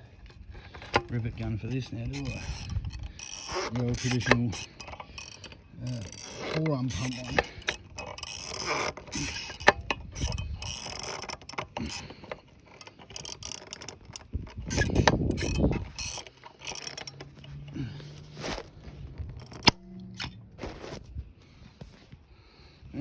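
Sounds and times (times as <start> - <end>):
rivet gun clicking: 2.0 - 17.6.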